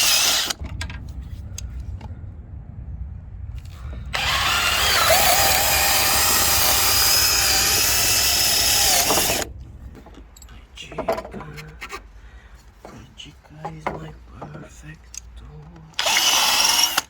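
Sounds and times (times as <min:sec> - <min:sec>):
cordless drill whining: 0:00.0 - 0:00.6, 0:04.1 - 0:09.5, 0:16.0 - 0:17.0.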